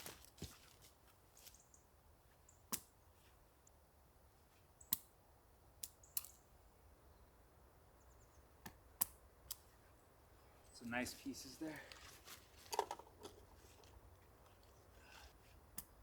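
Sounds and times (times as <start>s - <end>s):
wood pieces clicking and knocking: 11.8s - 14.8s.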